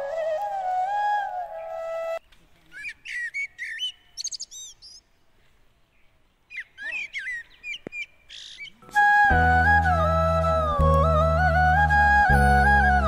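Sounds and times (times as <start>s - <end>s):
flute music: 0.0s - 2.2s, 8.8s - 13.0s
small birds chirping: 1.6s - 8.9s.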